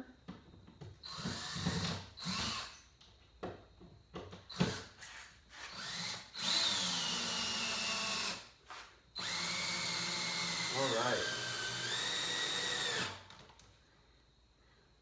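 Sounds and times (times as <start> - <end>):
power drill drilling into wood: 1.1 - 2.7, 5.5 - 8.4, 9.2 - 13.3.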